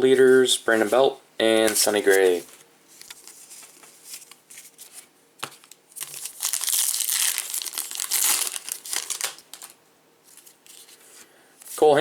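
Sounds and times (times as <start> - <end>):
card pack wrapper tearing and crinkling: 5.7 - 9.8.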